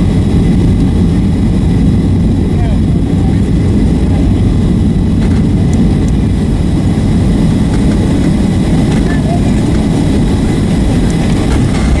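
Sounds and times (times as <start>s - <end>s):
aircraft cabin low rumble: 0.0s - 12.0s
faint clicks: 11.0s - 12.0s.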